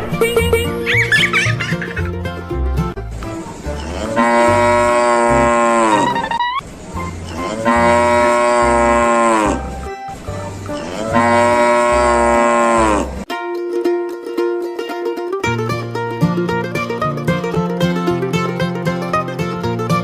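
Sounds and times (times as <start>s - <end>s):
cow mooing: 3.8s - 6.2s, 7.3s - 9.8s, 10.7s - 13.2s.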